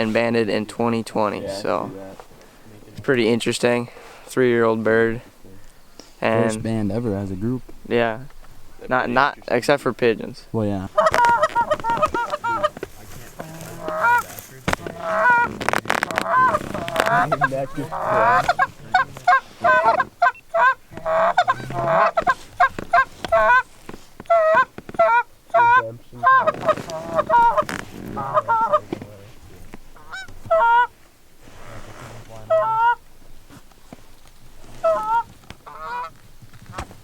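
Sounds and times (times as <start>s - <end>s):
goose honking and clucking: 10.9s - 29.0s, 30.0s - 30.9s, 32.3s - 33.0s, 34.6s - 36.9s.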